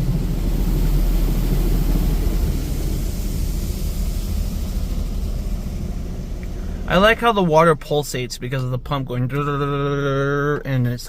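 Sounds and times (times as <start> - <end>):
high-pressure water spraying car: 0.0 - 8.6
deep pump rumble: 0.0 - 11.0.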